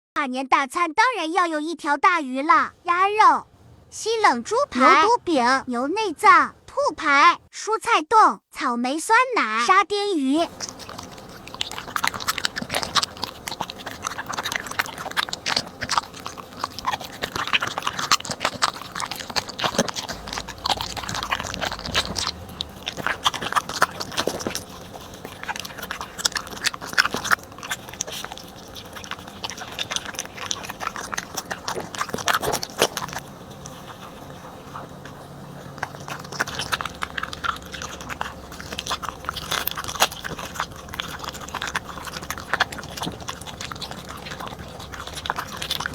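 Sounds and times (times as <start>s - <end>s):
dog chewing and crunching food: 10.3s - 45.9s.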